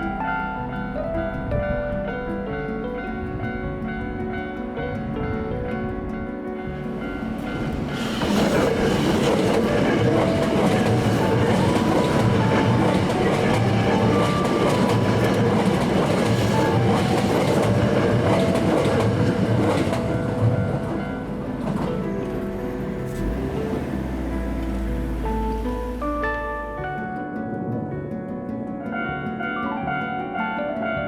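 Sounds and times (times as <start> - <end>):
train wheels clattering over rails: 6.7 - 26.4.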